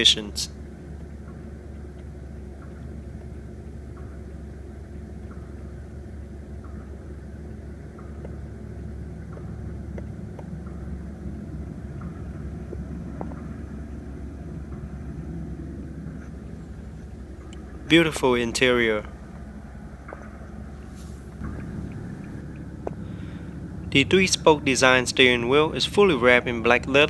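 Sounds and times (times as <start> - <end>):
car engine idling: 16.4 - 19.6, 20.7 - 27.0.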